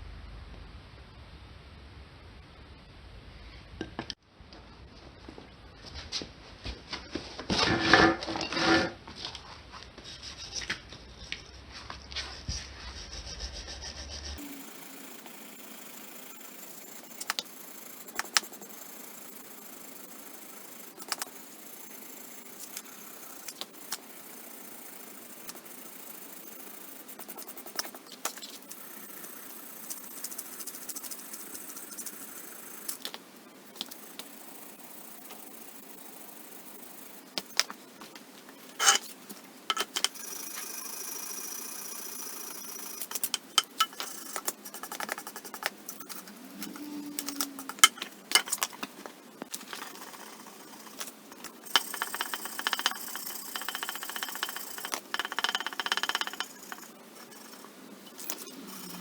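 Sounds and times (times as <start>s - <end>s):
metal tools clinking and rattling: 38.8s - 39.0s, 39.7s - 40.2s, 43.1s - 44.4s, 47.2s - 48.8s.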